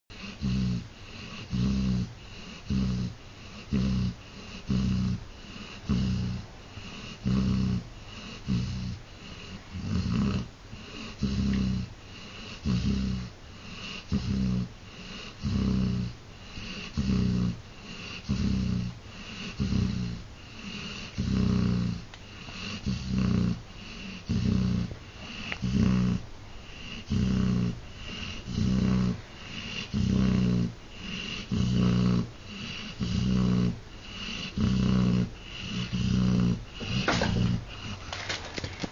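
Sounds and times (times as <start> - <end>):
dog snoring: 0.1 - 38.9.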